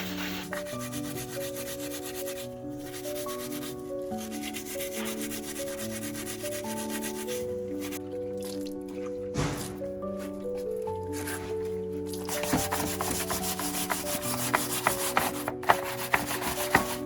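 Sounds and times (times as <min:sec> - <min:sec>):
sanding strokes: 0:00.0 - 0:08.0, 0:12.2 - 0:17.0
slow melodic background music: 0:00.0 - 0:17.0.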